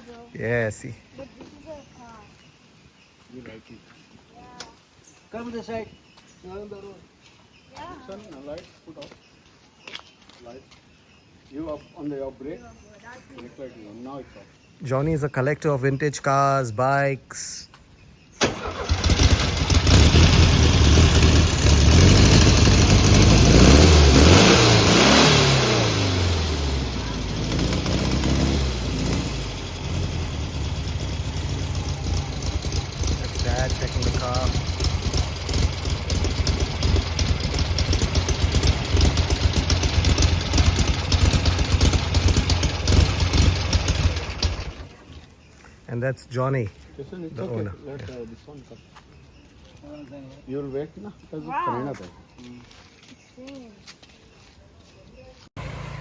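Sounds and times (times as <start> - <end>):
car engine revving: 18.5 - 44.8, 55.6 - 56.0.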